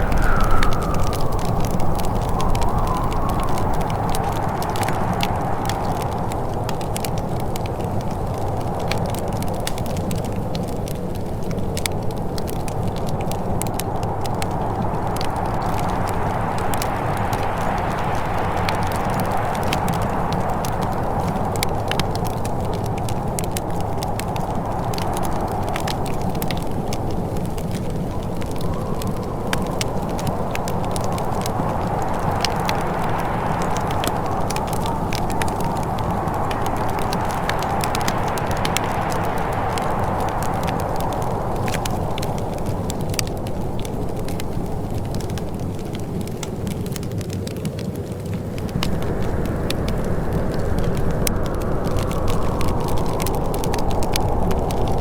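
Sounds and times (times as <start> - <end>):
low rushing sound: 0.0 - 5.4, 48.6 - 55.0
wood fire crackling in fireplace: 0.0 - 55.0.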